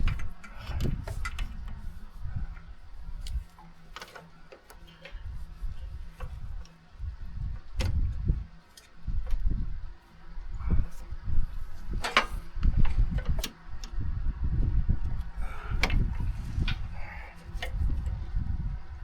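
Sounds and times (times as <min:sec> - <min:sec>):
low handling noise rumble: 0:05.1 - 0:19.0
sharp clicks and knocks: 0:11.9 - 0:14.0.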